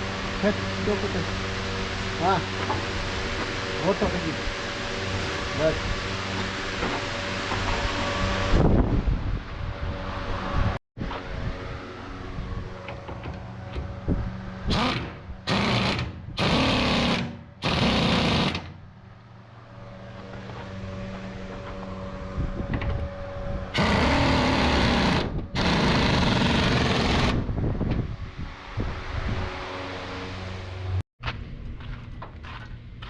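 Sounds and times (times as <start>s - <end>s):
power tool running in bursts: 14.6s - 18.8s, 23.7s - 27.5s.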